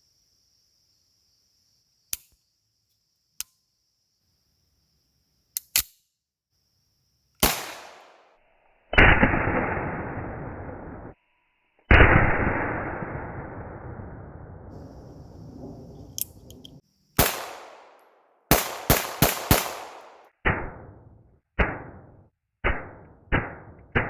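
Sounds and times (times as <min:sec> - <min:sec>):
metallic pistol clicks: 0:02.2 - 0:02.4, 0:05.5 - 0:06.1
gunshots: 0:07.4 - 0:08.2, 0:09.0 - 0:11.1, 0:17.2 - 0:24.0.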